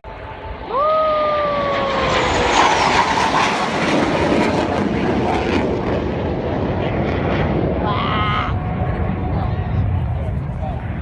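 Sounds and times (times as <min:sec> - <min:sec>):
whine falling in pitch: 0:00.1 - 0:04.7
helicopter flying past: 0:01.4 - 0:11.0.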